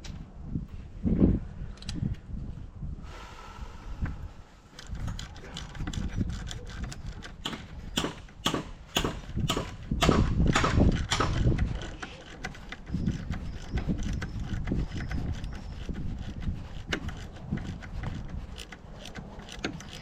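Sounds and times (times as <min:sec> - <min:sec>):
metallic knocks and clicks from tools: 0:16.9 - 0:20.0.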